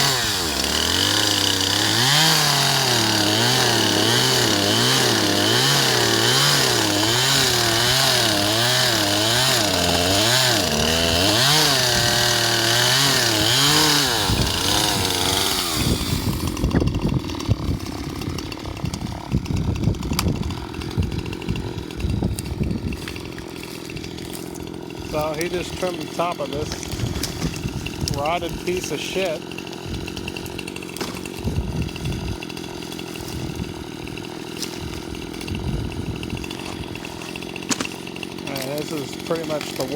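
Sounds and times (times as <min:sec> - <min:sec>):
chainsaw engine surging: 0:00.0 - 0:39.9
crackles and knocks: 0:37.6 - 0:38.0.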